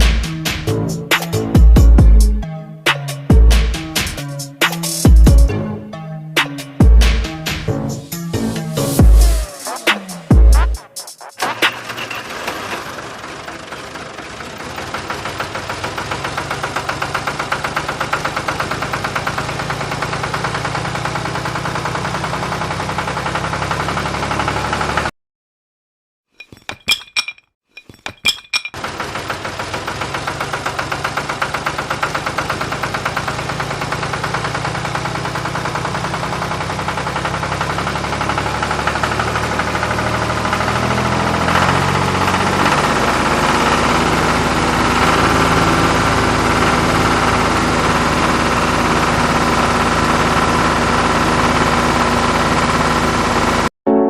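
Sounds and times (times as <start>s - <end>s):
small motor rattling: 28.8s - 53.6s.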